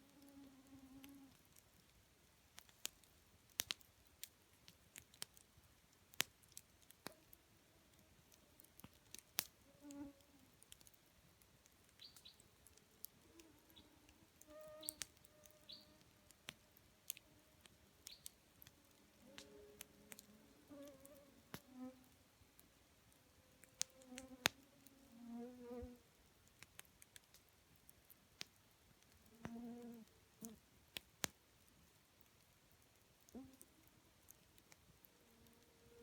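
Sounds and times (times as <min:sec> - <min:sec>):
campfire crackling and popping: 0:01.0 - 0:24.9, 0:25.8 - 0:35.8.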